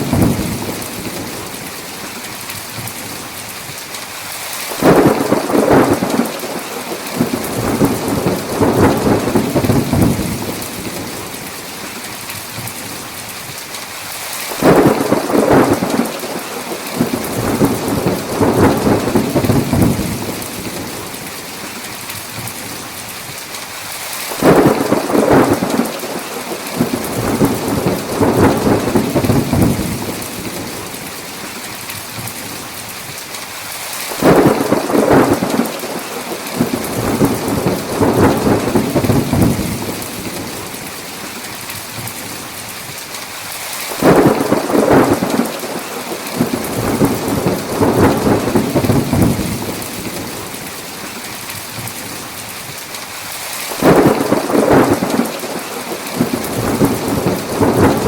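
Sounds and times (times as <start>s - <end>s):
thunder rumbling: 0.0s - 2.0s, 4.7s - 11.8s, 14.5s - 21.5s, 24.3s - 31.1s, 34.2s - 41.1s, 43.9s - 51.1s, 53.7s - 58.0s
heavy rain hissing: 0.0s - 58.0s.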